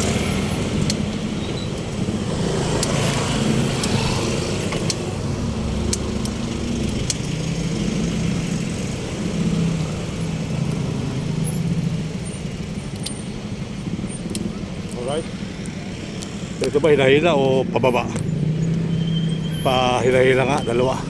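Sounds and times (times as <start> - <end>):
light ticks: 0.7 - 2.0, 2.6 - 4.0, 5.8 - 7.4.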